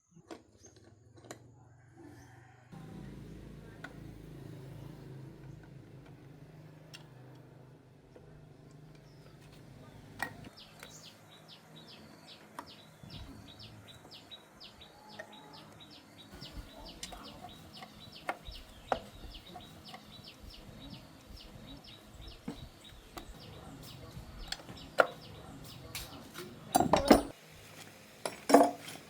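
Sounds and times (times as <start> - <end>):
bird chirping: 8.2 - 27.3.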